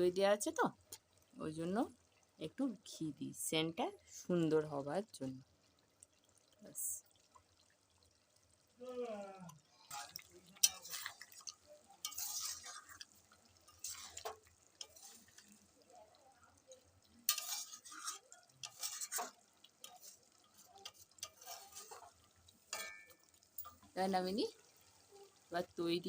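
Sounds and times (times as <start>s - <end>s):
spatula scraping metal pan: 9.9s - 15.6s, 17.3s - 23.1s.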